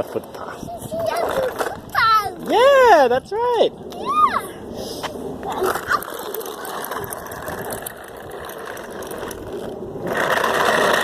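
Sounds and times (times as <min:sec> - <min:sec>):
toy truck rattling along footpath: 0:00.0 - 0:02.6, 0:05.4 - 0:11.0.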